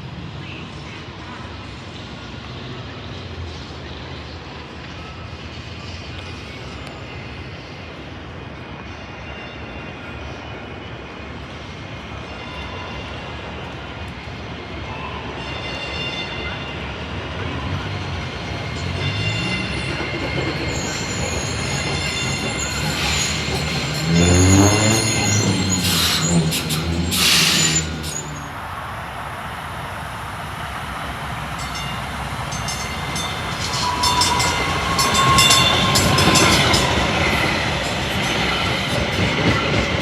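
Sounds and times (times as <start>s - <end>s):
passenger train on rails: 0.0s - 40.0s
high-pitched wheel squeal: 19.0s - 28.6s, 32.6s - 39.0s.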